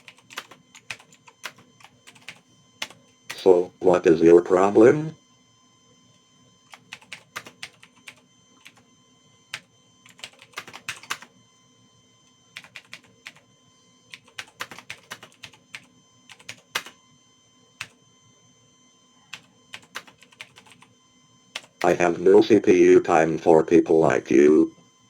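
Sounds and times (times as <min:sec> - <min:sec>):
computer keyboard typing: 0:00.0 - 0:03.5, 0:06.7 - 0:08.8, 0:09.5 - 0:11.3, 0:12.6 - 0:13.4, 0:14.1 - 0:16.9, 0:19.3 - 0:20.9, 0:21.6 - 0:22.0.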